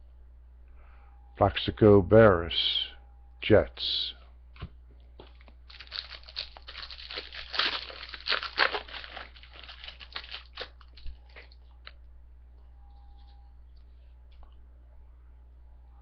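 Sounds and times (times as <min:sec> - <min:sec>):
foil wrapper crinkling: 0:05.2 - 0:11.8.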